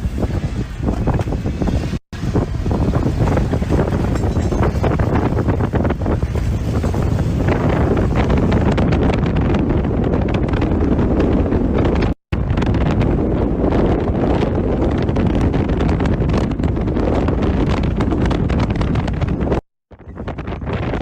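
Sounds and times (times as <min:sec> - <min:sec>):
storm wind buffeting microphone: 0:00.0 - 0:21.0.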